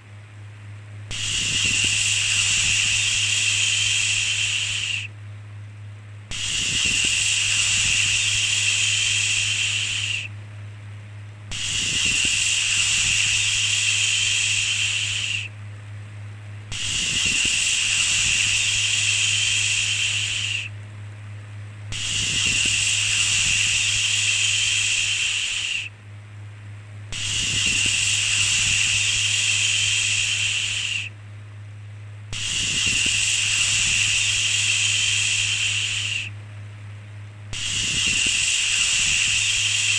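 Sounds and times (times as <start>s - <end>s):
steady low hum: 0.0s - 39.9s
shushing hiss: 1.1s - 5.1s, 6.3s - 10.3s, 11.5s - 15.5s, 16.7s - 20.8s, 21.9s - 25.9s, 27.1s - 31.2s, 32.3s - 36.4s, 37.5s - 39.9s.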